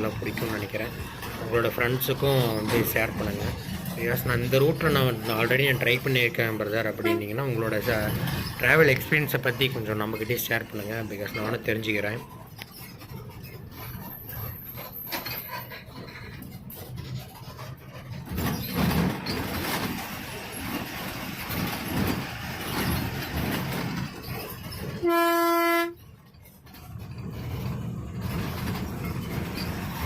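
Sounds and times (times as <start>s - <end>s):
bus engine running: 0.0s - 30.0s
bus horn blast: 7.0s - 7.3s, 25.0s - 26.0s.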